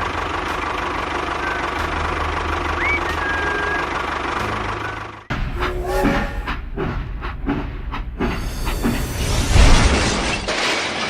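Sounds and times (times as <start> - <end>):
engine knocking idle: 0.0 - 5.3
broken engine sound: 0.0 - 9.1.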